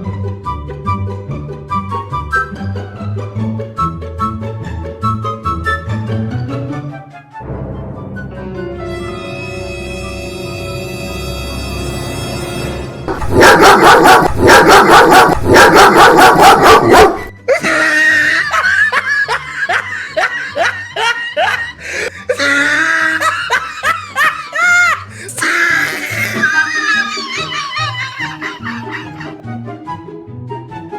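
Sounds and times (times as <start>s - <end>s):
dog barking rapidly: 13.1s - 17.4s, 23.2s - 29.4s
laughter: 13.4s - 29.4s.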